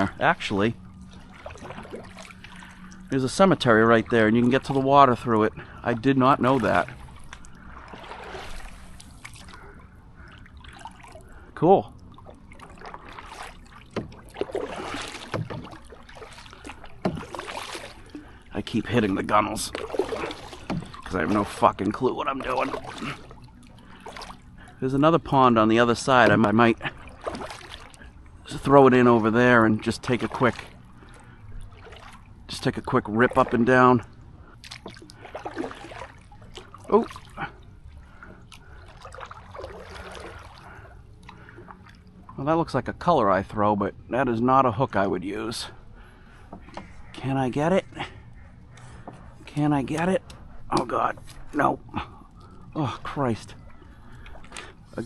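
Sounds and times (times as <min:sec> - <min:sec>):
paddle swishing through water: 0:00.0 - 0:42.4, 0:45.5 - 0:55.0
paddle knocking on canoe: 0:12.5 - 0:18.2, 0:19.0 - 0:23.3, 0:26.1 - 0:27.8.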